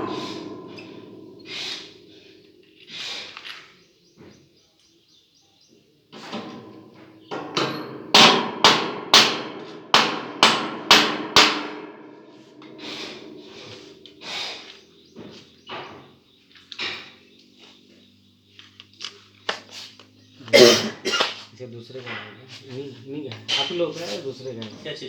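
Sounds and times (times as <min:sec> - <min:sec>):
hammer strikes ringing: 0:00.0 - 0:02.9, 0:06.2 - 0:14.3.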